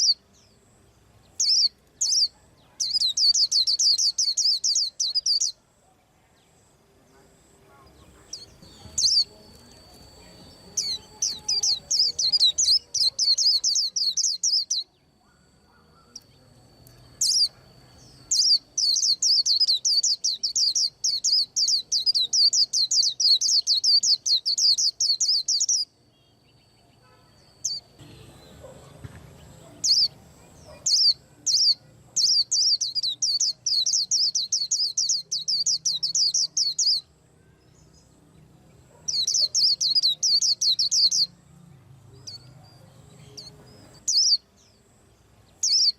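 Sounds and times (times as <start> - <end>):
bird twittering: 0.0 - 0.6, 1.4 - 5.6, 8.0 - 25.9, 29.6 - 37.2, 38.9 - 41.3, 43.2 - 44.5, 45.6 - 45.9
bird chirps: 0.0 - 5.7, 6.3 - 45.9.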